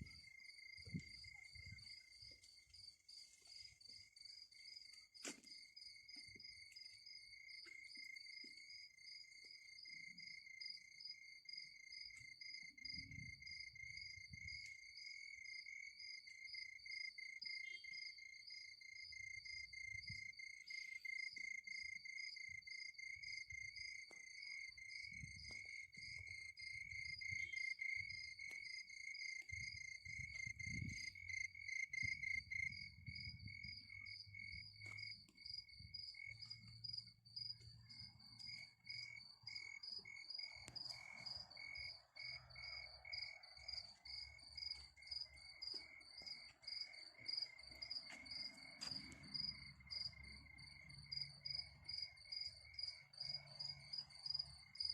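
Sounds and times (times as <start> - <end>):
low-pitched cricket trill: 0.0 - 54.9
high-pitched cricket trill: 11.9 - 54.9.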